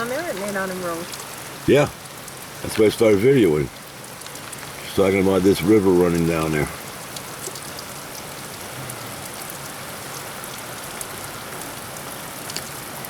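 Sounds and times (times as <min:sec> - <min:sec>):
heavy rain hissing: 0:00.0 - 0:13.0
raindrops ticking nearby: 0:00.0 - 0:13.0.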